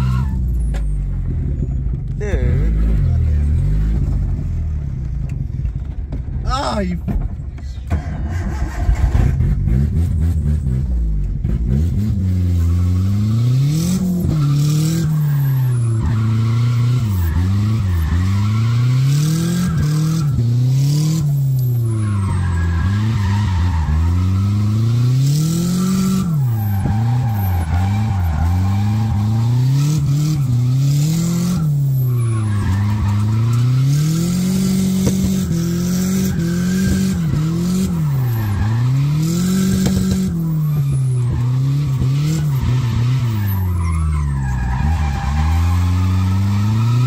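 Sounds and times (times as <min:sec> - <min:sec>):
car engine revving: 0:07.9 - 0:47.0
tyres squealing: 0:25.7 - 0:47.0.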